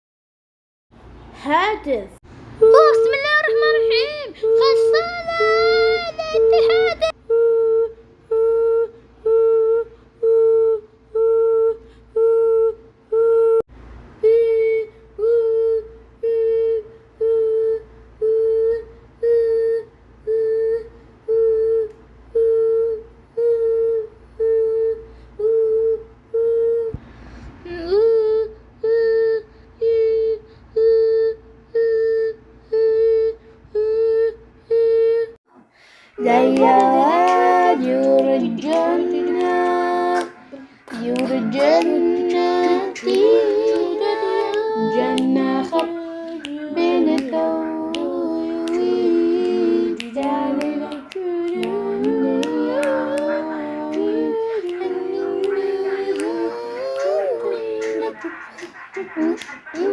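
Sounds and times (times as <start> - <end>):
high voice singing one note: 36.2 - 58.2.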